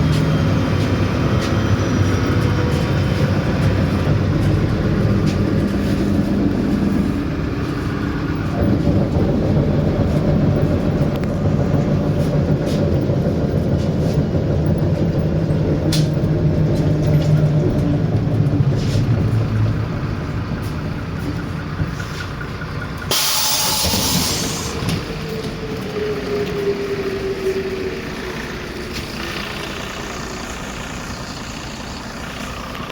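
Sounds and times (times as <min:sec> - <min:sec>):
bus diesel engine running: 0:00.0 - 0:32.9
compressed air hiss: 0:23.1 - 0:24.8.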